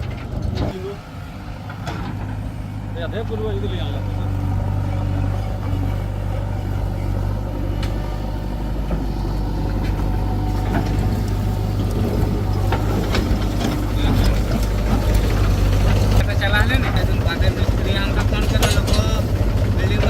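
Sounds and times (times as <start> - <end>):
heavy machine engine humming: 0.0 - 20.0
short knocks and clatter: 7.6 - 17.2.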